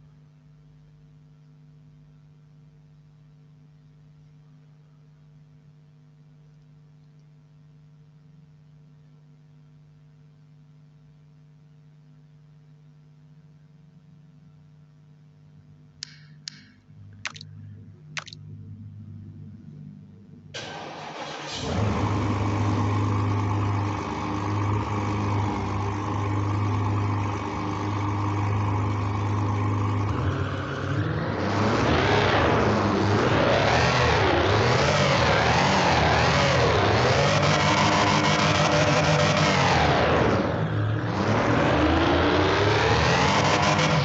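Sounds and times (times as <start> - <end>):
car engine idling and revving: 20.6 - 44.0.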